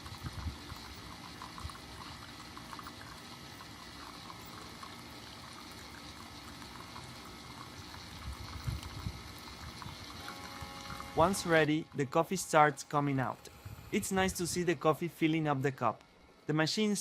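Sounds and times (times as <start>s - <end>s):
water gurgles and pops: 0.0s - 11.5s
coffee maker hissing: 0.0s - 15.4s.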